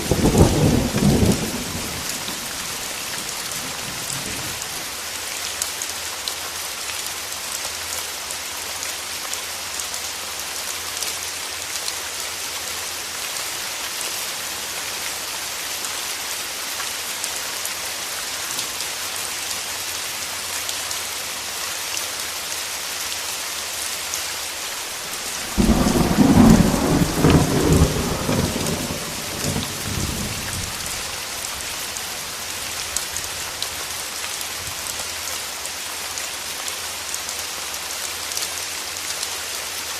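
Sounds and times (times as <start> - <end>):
thunder clap rumbling: 0.0 - 4.6, 25.2 - 31.2
steady rain falling: 0.0 - 39.9.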